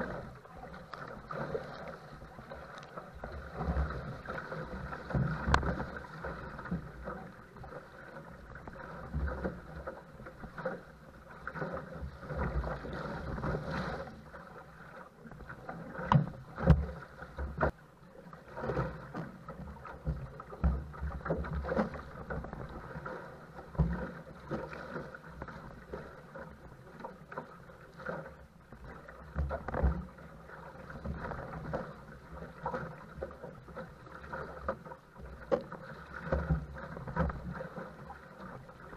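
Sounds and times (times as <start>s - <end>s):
paddle strokes splashing: 0.0s - 38.9s
waves slapping against boat: 0.0s - 38.9s.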